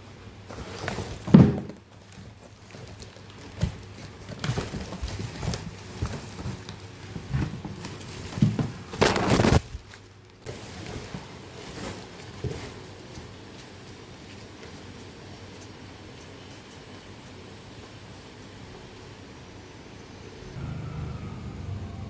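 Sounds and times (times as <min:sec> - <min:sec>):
rustling or scraping: 0:00.5 - 0:18.6
objects thudding and knocking: 0:00.6 - 0:01.9.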